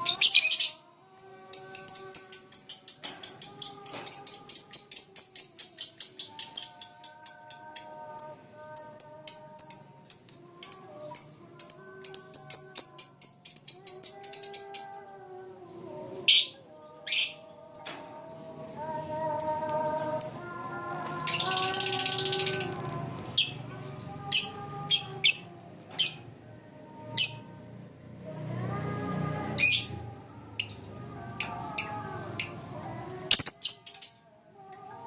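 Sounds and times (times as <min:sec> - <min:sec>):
background music with held notes: 0:00.0 - 0:35.0
lovebird chirping: 0:21.2 - 0:26.3, 0:33.2 - 0:35.0.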